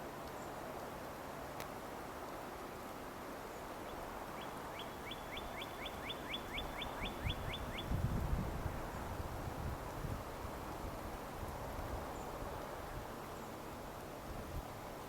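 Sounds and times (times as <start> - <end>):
songbird whistling: 4.4 - 7.9.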